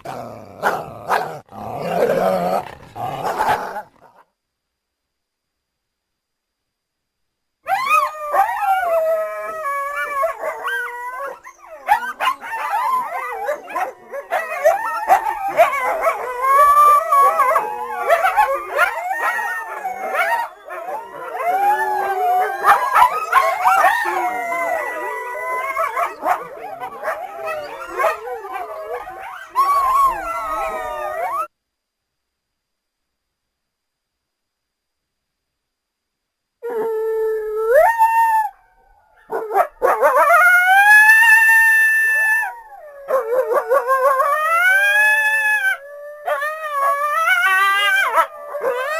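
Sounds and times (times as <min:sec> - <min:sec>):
coyotes howling and yipping: 0:07.7 - 0:31.5, 0:36.6 - 0:48.9.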